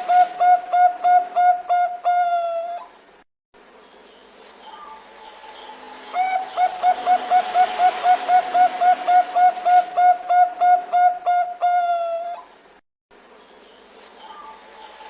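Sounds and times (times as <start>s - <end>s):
dove cooing: 0.0s - 2.9s, 5.6s - 12.5s.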